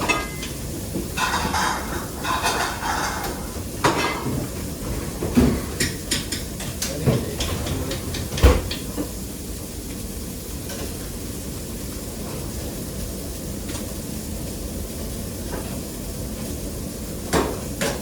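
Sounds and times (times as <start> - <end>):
pots and pans clattering: 0.0 - 9.2, 17.2 - 18.0
steady background noise: 0.0 - 18.0.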